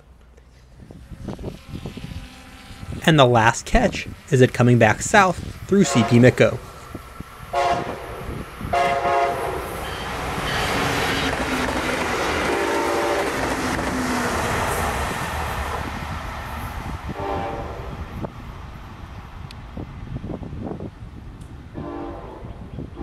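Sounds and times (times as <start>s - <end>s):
train rushing and rumbling past: 0.0s - 23.0s
train horn blasts: 5.4s - 6.9s, 7.5s - 11.5s, 12.3s - 13.6s, 17.2s - 18.0s, 21.7s - 23.0s.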